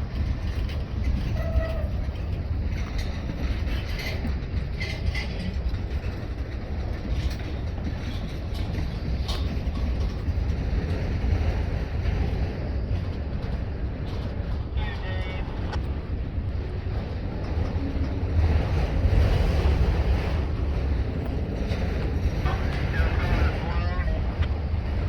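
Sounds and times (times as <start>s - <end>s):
train rumbling on track: 0.0s - 25.0s
metallic clicks and squeals: 0.6s - 2.5s.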